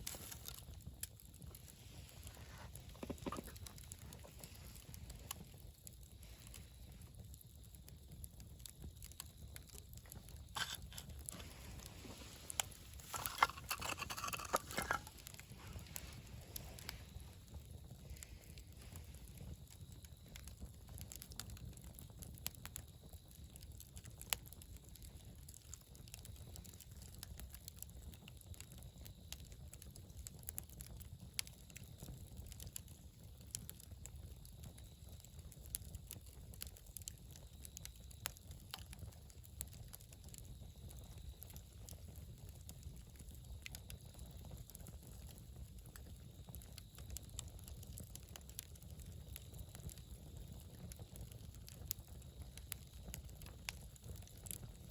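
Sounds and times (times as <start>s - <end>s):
fire pops: 0.0s - 25.8s
campfire crackling: 0.0s - 54.9s.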